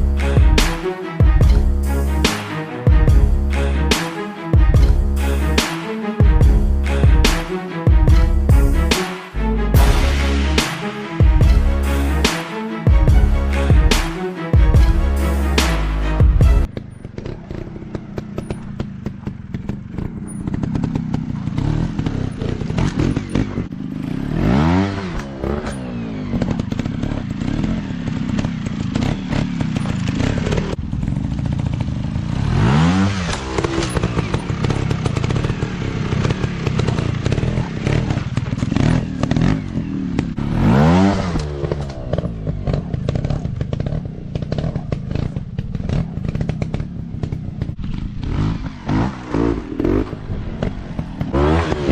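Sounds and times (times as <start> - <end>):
dirt bike engines revving: 14.8 - 51.9.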